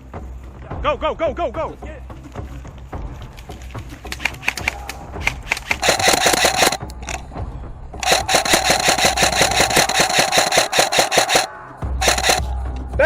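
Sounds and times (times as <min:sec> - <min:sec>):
scattered clicks: 0:04.1 - 0:07.2, 0:08.0 - 0:12.5
airsoft rifle firing bursts: 0:04.2 - 0:07.2, 0:08.0 - 0:12.5
gearbox whirring: 0:05.3 - 0:07.2, 0:08.0 - 0:12.4.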